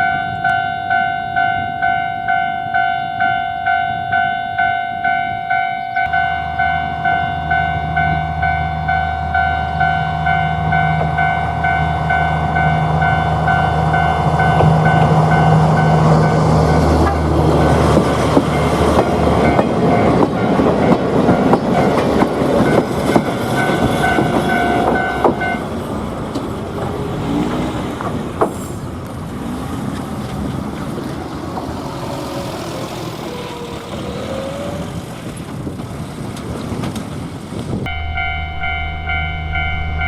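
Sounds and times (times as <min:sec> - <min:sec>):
ringing tone: 0:00.0 - 0:14.6, 0:37.9 - 0:40.0
train wheels clattering on rails: 0:10.7 - 0:40.0
steady low hum: 0:37.9 - 0:40.0.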